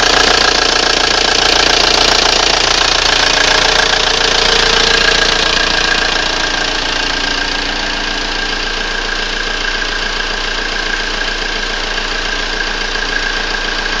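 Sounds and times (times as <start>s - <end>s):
diesel engine running: 0.0s - 14.0s
high whine: 2.2s - 14.0s.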